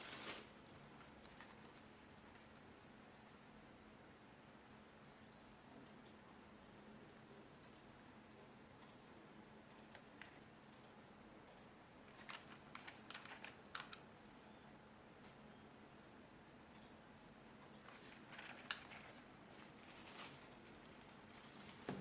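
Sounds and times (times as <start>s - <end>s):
keyboard keys clicking: 10.7s - 14.0s.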